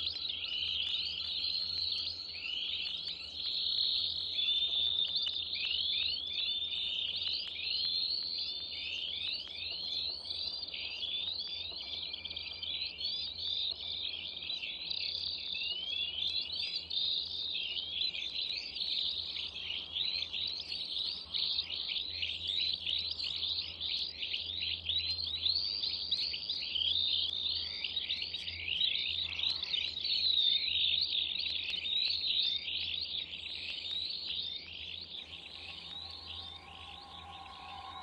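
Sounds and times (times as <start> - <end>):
small birds chirping and twittering: 0.0 - 38.0
faint droning tones: 35.1 - 38.0
low steady hum: 35.1 - 38.0.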